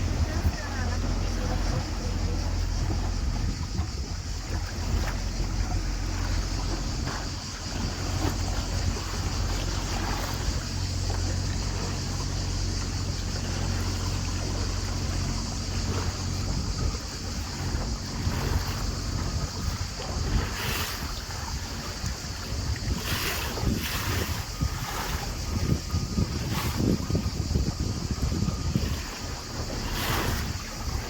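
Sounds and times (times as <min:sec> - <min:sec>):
boat engine humming: 0:00.0 - 0:31.0
water rushing along hull: 0:00.0 - 0:31.0
wind buffeting microphone: 0:00.0 - 0:31.0.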